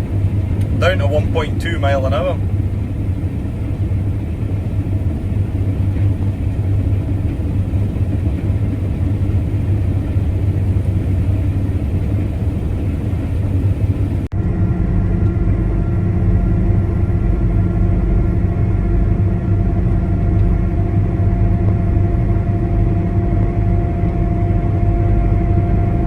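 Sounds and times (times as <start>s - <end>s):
combine harvester running: 0.0s - 26.0s.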